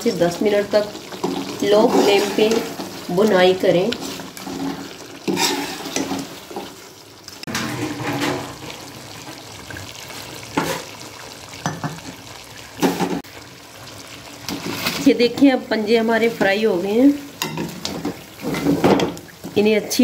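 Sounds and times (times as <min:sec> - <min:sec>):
food sizzling in a pot: 0:00.0 - 0:20.0
metal spoon scraping a pan: 0:01.1 - 0:06.8, 0:07.5 - 0:08.8.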